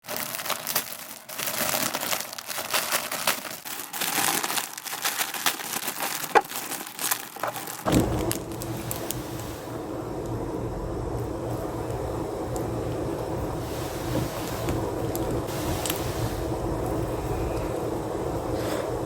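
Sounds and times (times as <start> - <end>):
material crinkling: 0.0 - 10.4, 11.1 - 17.9
steady low hum: 7.9 - 19.0.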